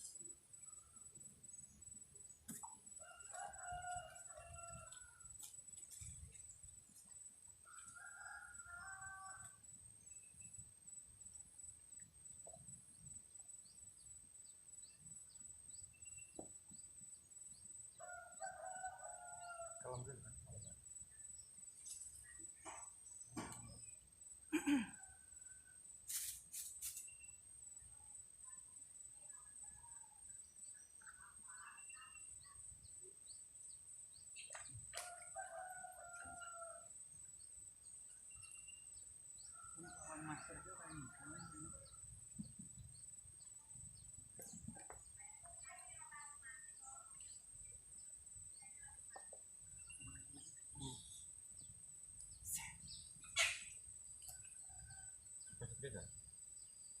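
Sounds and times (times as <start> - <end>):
distant rooster crowing: 3.0 - 5.3, 18.1 - 20.3, 34.6 - 37.0, 39.6 - 42.9
faint chirps: 5.8 - 57.0
rooster crowing: 18.1 - 20.0
small bird chirps: 48.6 - 55.6.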